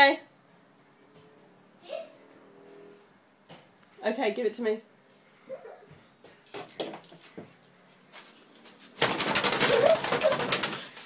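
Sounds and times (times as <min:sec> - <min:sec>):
bird wings beating against glass: 0:09.0 - 0:11.0.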